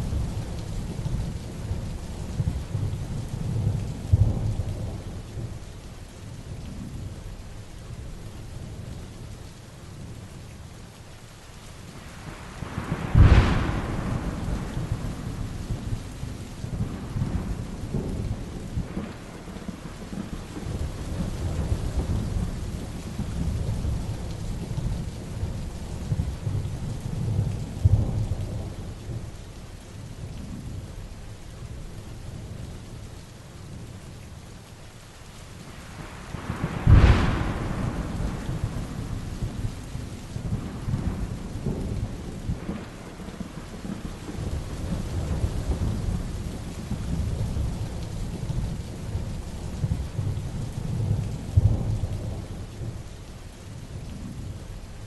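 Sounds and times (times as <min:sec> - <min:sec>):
low rumbling thunder: 0:00.0 - 0:05.6, 0:12.2 - 0:29.4, 0:35.8 - 0:53.2
heavy rain falling: 0:00.0 - 0:55.0
sharp loud thunderclap: 0:12.6 - 0:24.1, 0:36.3 - 0:47.8.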